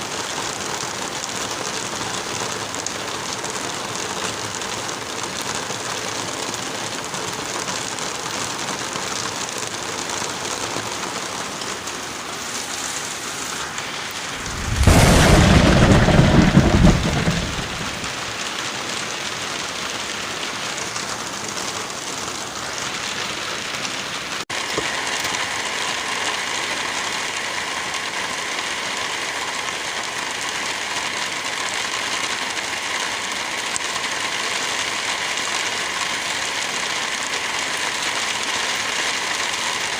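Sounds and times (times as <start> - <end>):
heavy rain: 0.0 - 39.9
thunderclap rumbling: 14.2 - 18.5.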